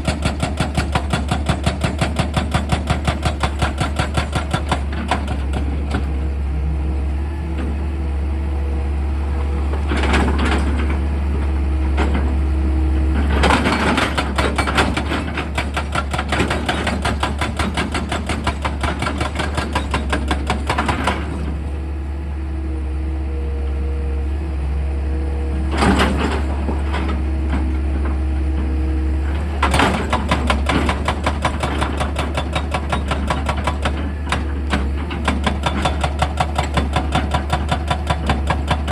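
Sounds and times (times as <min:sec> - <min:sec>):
excavator engine humming: 0:00.0 - 0:38.9
hydraulic drill hammering: 0:29.6 - 0:38.9.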